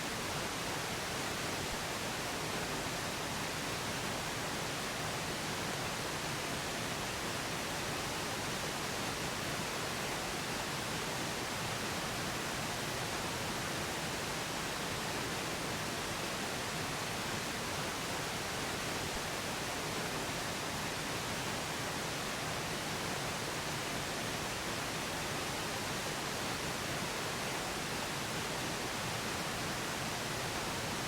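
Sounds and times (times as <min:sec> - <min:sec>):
steady pink noise: 0:00.0 - 0:31.0.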